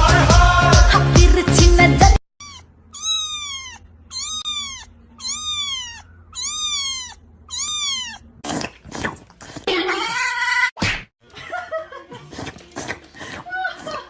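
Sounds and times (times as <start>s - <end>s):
cat meowing: 2.4s - 8.4s.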